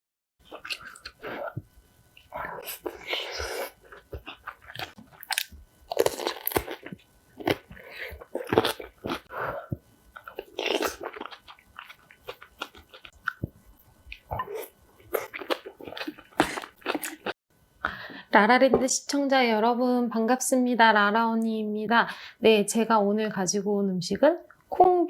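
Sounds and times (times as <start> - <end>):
crunchy biting and chewing: 0.4 - 1.6, 2.2 - 17.4.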